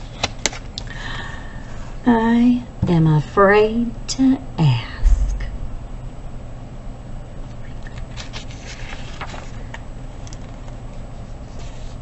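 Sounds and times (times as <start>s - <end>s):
steady low hum: 0.0s - 12.0s
book pages rustling: 7.9s - 12.0s.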